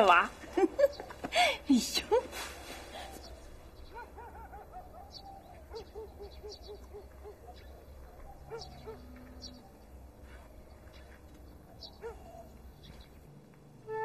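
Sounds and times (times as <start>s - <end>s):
faint outdoor ambience: 0.0s - 14.0s
bird hooting: 3.0s - 9.7s.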